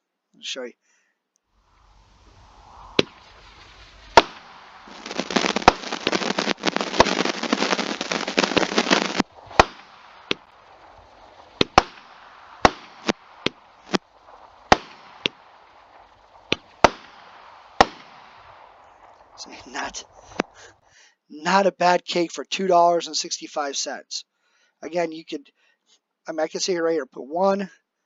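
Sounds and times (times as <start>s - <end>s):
dense firework crackling: 1.5s - 20.9s
firework report: 1.6s - 20.9s
separate sharp firework cracks: 1.8s - 20.7s.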